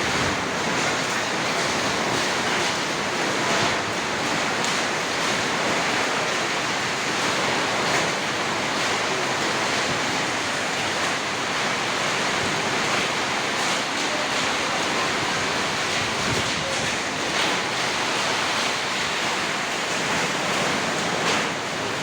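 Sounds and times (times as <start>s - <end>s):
heavy rain and hail: 0.0s - 22.0s
strong wind: 15.9s - 17.2s.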